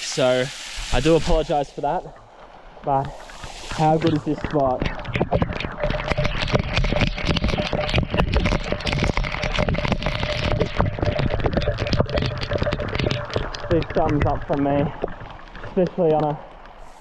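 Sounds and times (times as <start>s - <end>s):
waterfall splashing: 0.0s - 2.0s.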